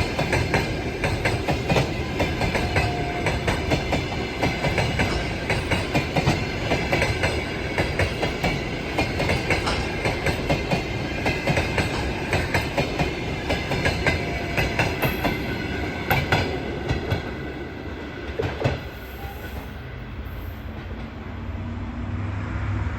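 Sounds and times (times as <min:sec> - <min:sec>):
train wheels clicking over rail joints: 0:00.0 - 0:19.7
train rumble: 0:00.0 - 0:22.9.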